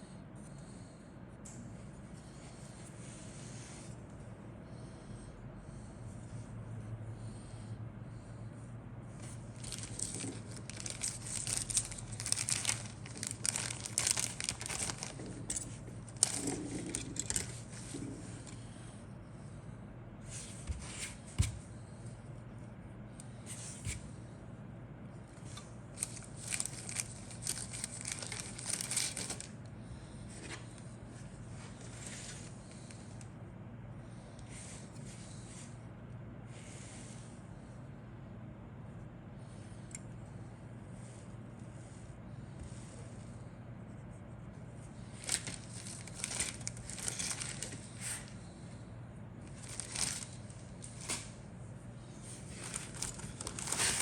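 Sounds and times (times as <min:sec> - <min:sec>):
plastic packaging crinkling: 0:09.5 - 0:17.8, 0:25.9 - 0:29.5, 0:45.2 - 0:48.3, 0:49.5 - 0:51.4, 0:52.5 - 0:54.0.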